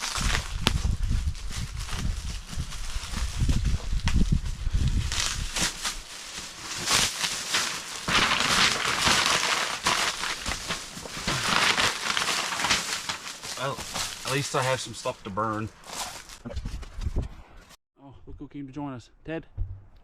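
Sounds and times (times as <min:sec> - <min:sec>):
packaging crinkling: 0:00.0 - 0:04.2, 0:04.8 - 0:16.4
low rumbling knocks: 0:19.4 - 0:20.0.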